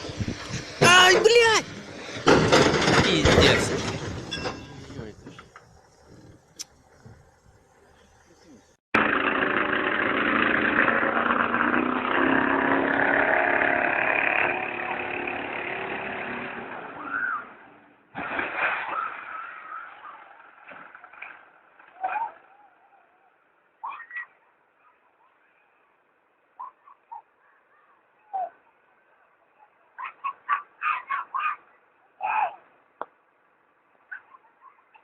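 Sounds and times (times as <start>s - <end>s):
vehicle engine running: 5.0s - 17.0s.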